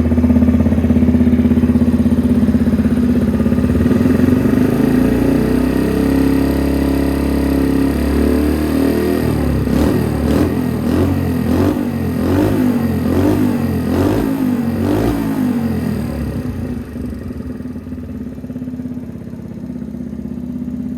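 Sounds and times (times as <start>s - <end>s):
motorcycle throttle blips: 0.0s - 6.6s
motorcycle engine idling: 0.0s - 20.9s.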